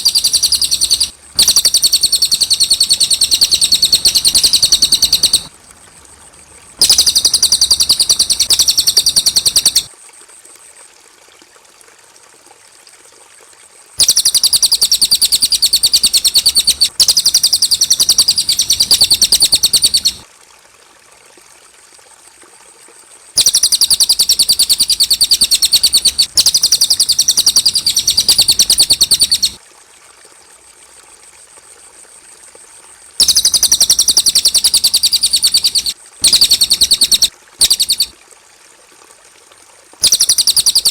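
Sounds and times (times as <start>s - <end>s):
bird singing rapid trills: 0.0s - 5.5s, 6.8s - 9.9s, 14.0s - 20.2s, 23.4s - 29.6s, 33.2s - 38.1s, 40.0s - 40.9s.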